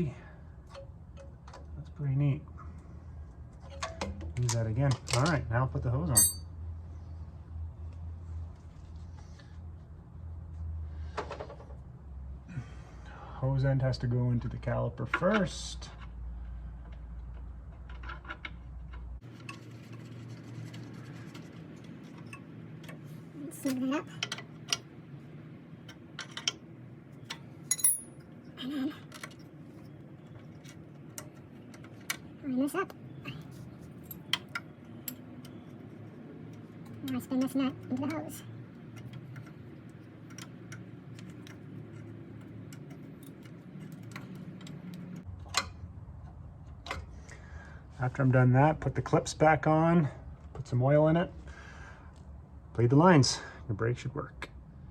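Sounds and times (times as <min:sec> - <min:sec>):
low steady hum: 0:00.0 - 0:11.2, 0:11.9 - 0:54.9
light clicks and scrapes of hand work: 0:15.2 - 0:24.9, 0:33.3 - 0:47.4.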